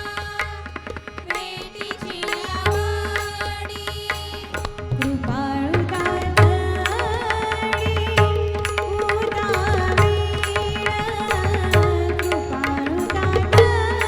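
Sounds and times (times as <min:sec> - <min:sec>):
hand drums playing: 0:04.6 - 0:14.0.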